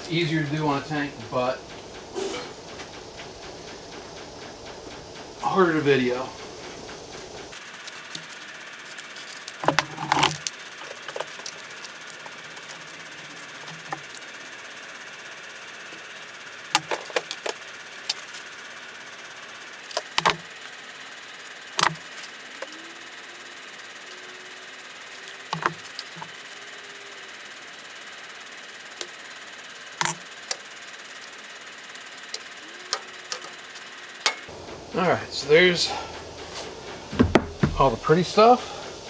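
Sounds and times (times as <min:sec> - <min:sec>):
faint steady hiss: 0:00.0 - 0:39.0
metal parts clanking: 0:07.5 - 0:20.7, 0:25.1 - 0:26.4, 0:32.8 - 0:34.5.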